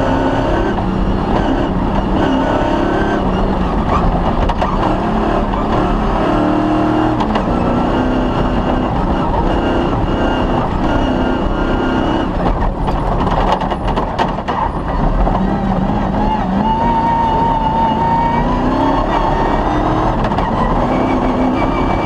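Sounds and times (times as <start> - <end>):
rally car engine shifting gears: 0.0 - 22.0
sharp knocks and rattles: 12.4 - 16.0.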